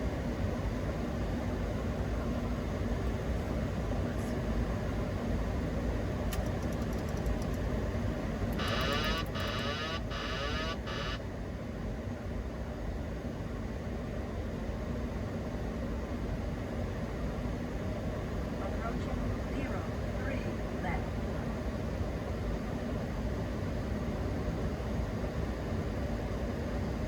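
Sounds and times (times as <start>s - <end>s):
pulsing electronic tone: 8.6s - 11.2s.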